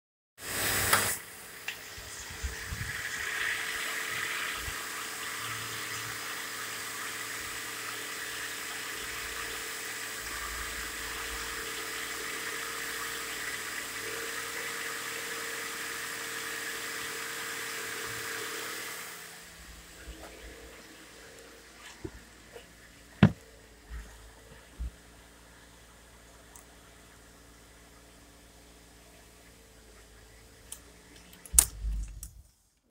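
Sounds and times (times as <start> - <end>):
car engine idling: 19.2 - 32.2
loud knock: 23.2 - 23.4.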